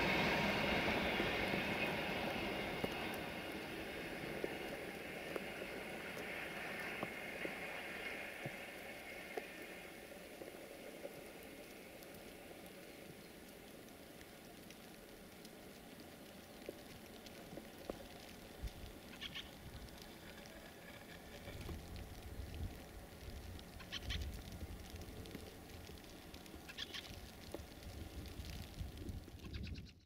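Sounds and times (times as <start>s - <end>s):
train clicks: 0.0s - 12.8s
train rumbling: 0.0s - 13.1s.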